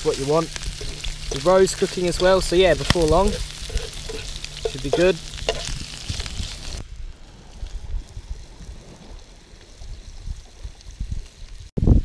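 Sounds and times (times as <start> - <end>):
scallops sizzling in a pan: 0.0 - 6.8
wind rumble on microphone: 0.5 - 12.0.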